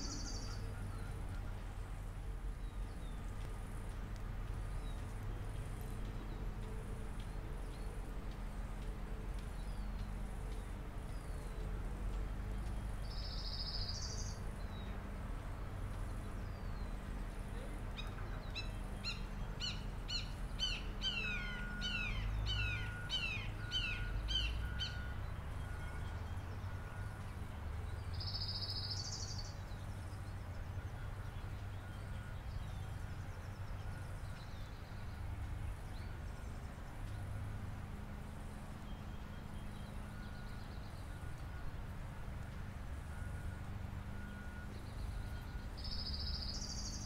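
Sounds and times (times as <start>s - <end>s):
bird calling: 18.0s - 25.0s.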